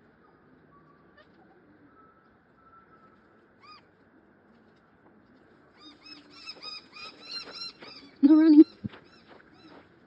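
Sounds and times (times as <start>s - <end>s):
birds calling: 5.8s - 10.0s.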